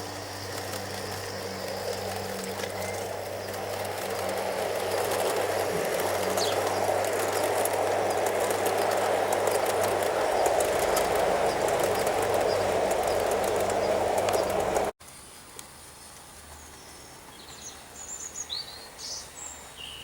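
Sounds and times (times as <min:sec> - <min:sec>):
model train wheels rumbling: 0:00.0 - 0:15.0
bird chirping: 0:00.1 - 0:14.9.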